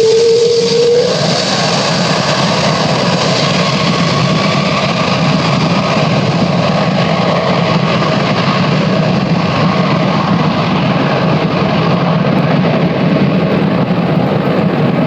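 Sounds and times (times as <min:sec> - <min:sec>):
engine humming: 0:00.0 - 0:07.5.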